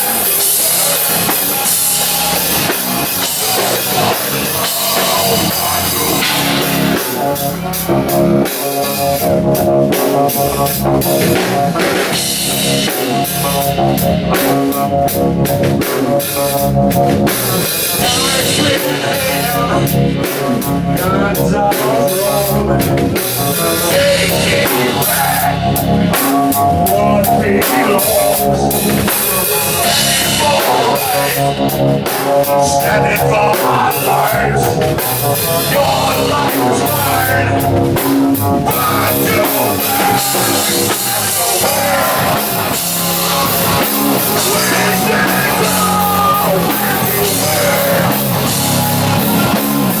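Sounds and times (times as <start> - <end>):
electric guitar: 0.0 - 50.0
rock band playing: 0.0 - 50.0.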